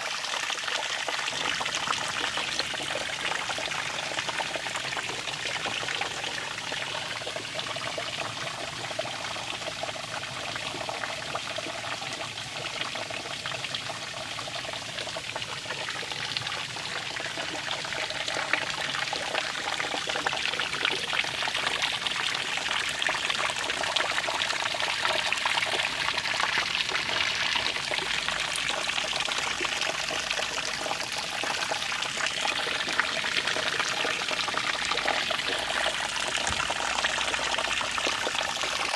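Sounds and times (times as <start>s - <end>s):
running water splashing: 25.5s - 38.9s.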